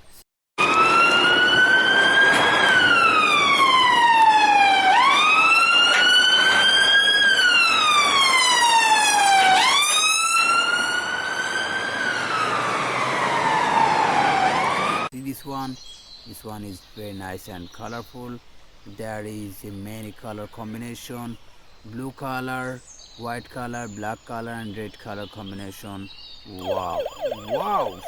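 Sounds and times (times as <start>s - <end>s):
electronic siren wailing: 0.6s - 15.1s, 26.6s - 28.0s.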